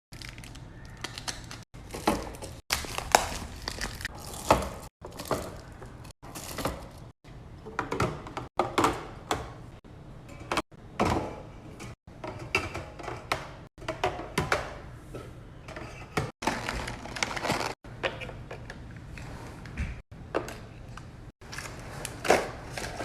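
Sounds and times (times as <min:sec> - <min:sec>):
wrappers crinkling: 0:00.1 - 0:07.0.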